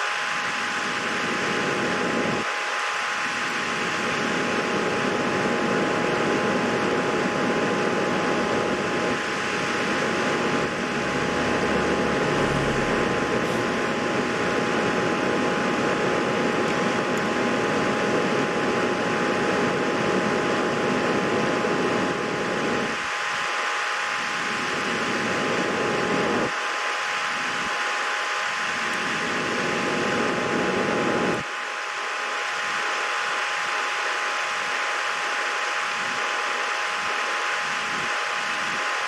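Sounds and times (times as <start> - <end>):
fan whirring: 0.4 - 26.4.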